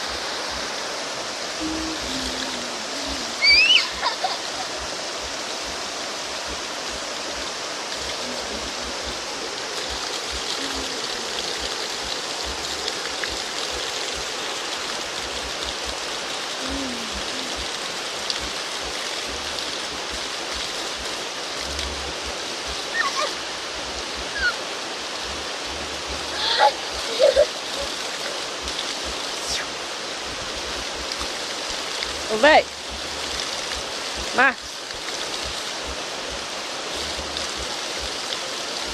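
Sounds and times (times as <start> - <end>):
waterfall rushing: 0.0 - 38.9
distant shouts: 3.4 - 4.0.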